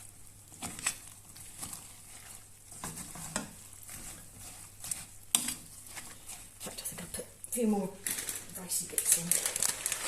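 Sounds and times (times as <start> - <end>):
utensil scraping and rustling: 0.5 - 7.2.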